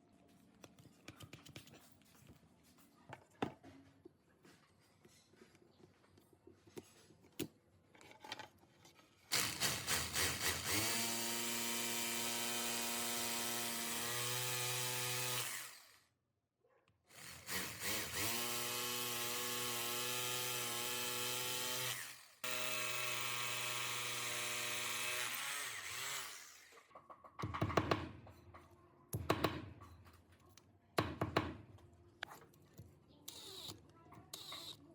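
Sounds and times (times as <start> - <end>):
hammer drill motor running: 9.3 - 16.0, 17.1 - 26.7.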